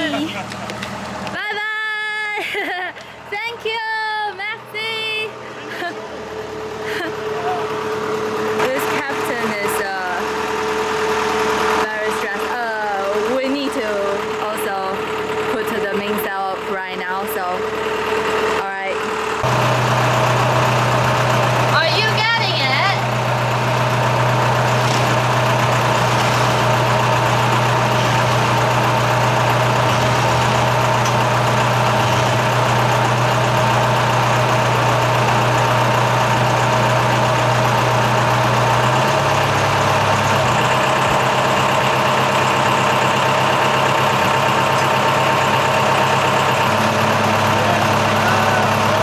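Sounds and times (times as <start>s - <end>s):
boat diesel engine humming: 0.0s - 49.0s.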